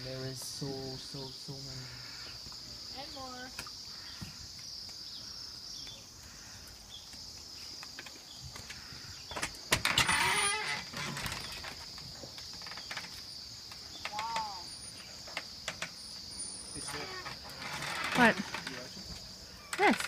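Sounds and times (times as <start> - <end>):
birds chirping in chorus: 0.0 - 20.0
rustling and crackling: 6.3 - 20.0.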